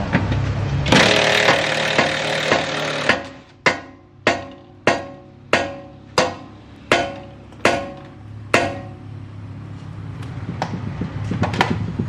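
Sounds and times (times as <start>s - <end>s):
sharp ringing knocks: 1.0s - 9.1s.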